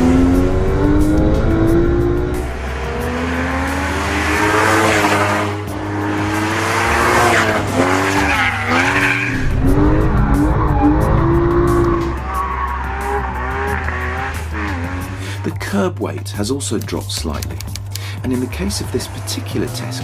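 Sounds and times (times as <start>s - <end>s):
car engine accelerating hard: 0.0s - 15.6s, 18.1s - 20.0s.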